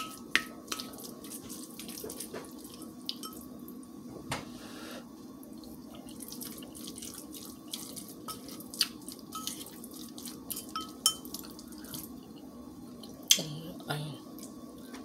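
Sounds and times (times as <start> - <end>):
low background hum: 0.0 - 15.0
wet chewing and mouth clicks: 6.0 - 10.6.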